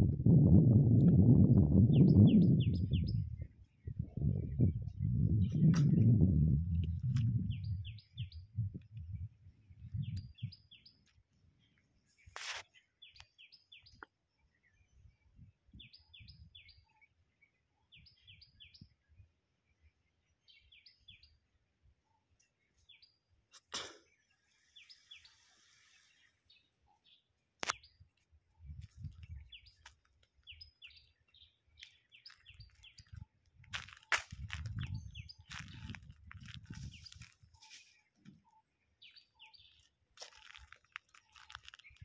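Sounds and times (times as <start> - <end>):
low rumbling: 0.0 - 10.4.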